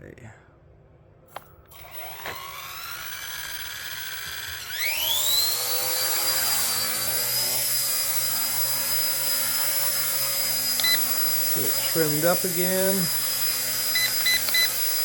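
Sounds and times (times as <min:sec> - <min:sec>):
model helicopter rotor whine: 0:01.7 - 0:15.0.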